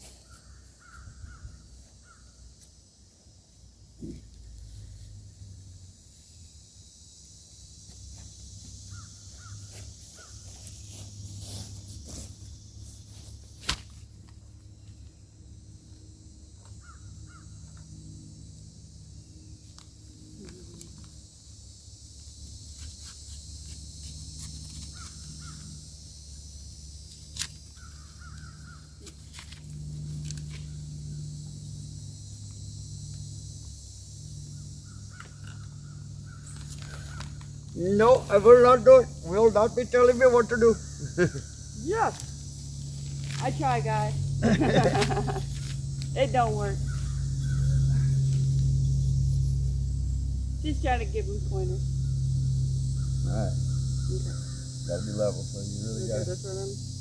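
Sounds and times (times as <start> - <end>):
birds calling: 8.8 - 10.6, 16.8 - 17.8, 24.9 - 25.8, 27.6 - 29.3, 34.5 - 41.8, 43.4 - 56.5
low hum: 23.7 - 57.0.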